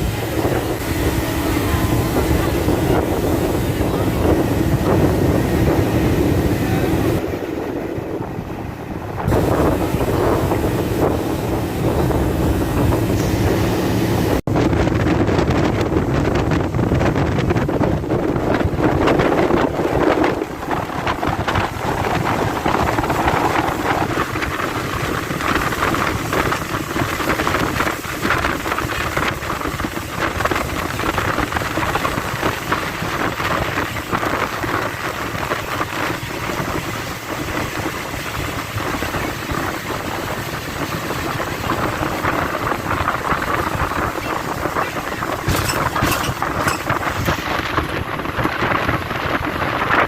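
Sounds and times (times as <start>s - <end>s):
wind buffeting microphone: 0.0s - 50.0s.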